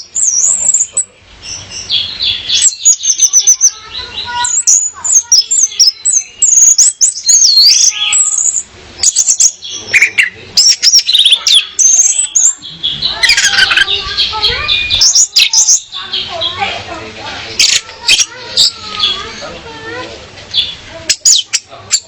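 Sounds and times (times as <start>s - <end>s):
thrush singing: 0.0s - 22.0s.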